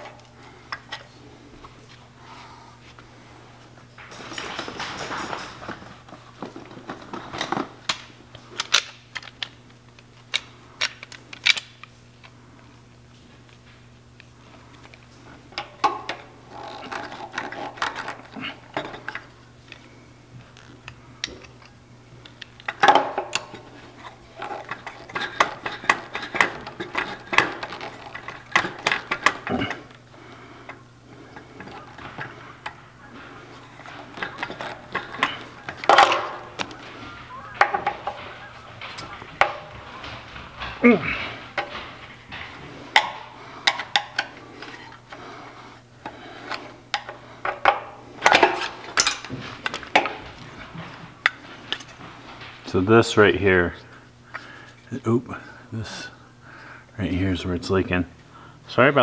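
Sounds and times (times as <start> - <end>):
steady low hum: 0.0 - 59.0
hand tools and metal fittings clinking: 4.0 - 8.0, 14.8 - 19.8, 20.6 - 30.0, 30.6 - 45.4, 46.0 - 53.2.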